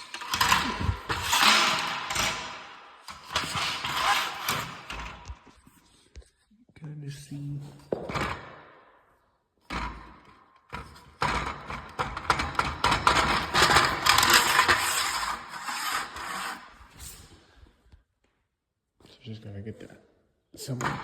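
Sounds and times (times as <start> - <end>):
scraping on hard surface: 0.0 - 6.3, 13.4 - 17.4.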